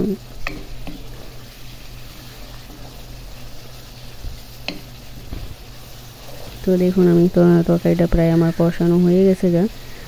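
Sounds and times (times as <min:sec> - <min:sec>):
spices sizzling in oil: 0:00.0 - 0:10.0
steady low hum: 0:00.0 - 0:10.0
wooden spatula stirring: 0:00.4 - 0:09.8.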